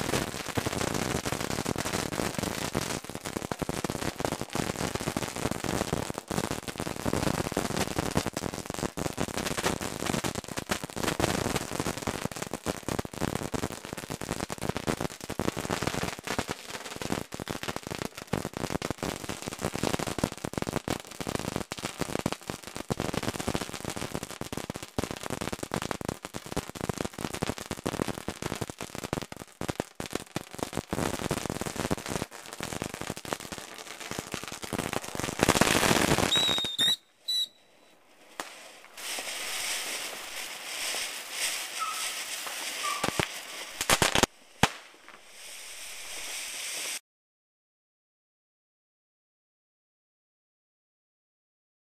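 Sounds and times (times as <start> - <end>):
fireworks bangs and crackles: 0.0 - 47.0
firework hissing burst with whistle: 34.8 - 47.0.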